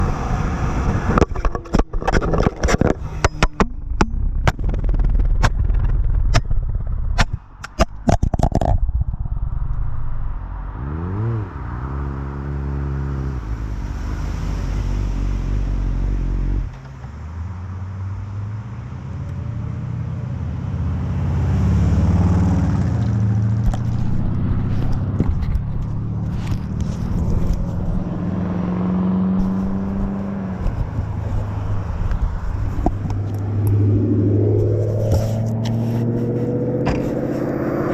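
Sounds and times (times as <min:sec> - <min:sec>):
vehicle engine: 0:00.0 - 0:37.9
camera clattering on road: 0:00.8 - 0:09.9, 0:22.9 - 0:37.9.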